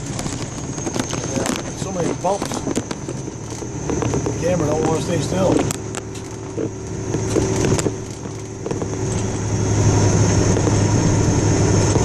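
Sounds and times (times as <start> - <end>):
knocks and rattles from bumps: 0.0 - 9.4
car engine and tyres rumbling: 0.0 - 12.0.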